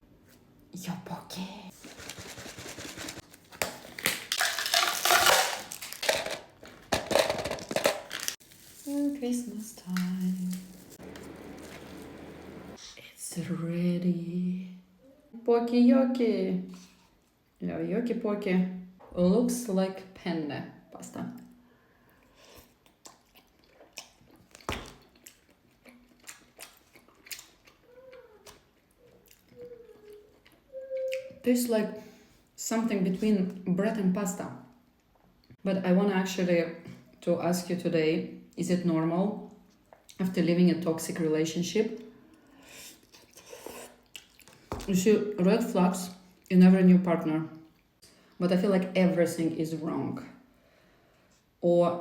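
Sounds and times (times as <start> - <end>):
plastic cup and packaging rustling: 1.7 - 12.8
close-miked chewing: 10.5 - 12.8, 22.6 - 31.3, 42.7 - 44.7.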